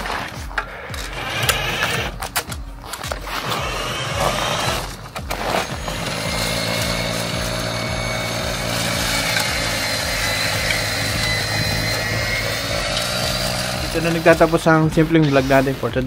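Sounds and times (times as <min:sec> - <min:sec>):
snow blower engine running: 0:03.3 - 0:15.6.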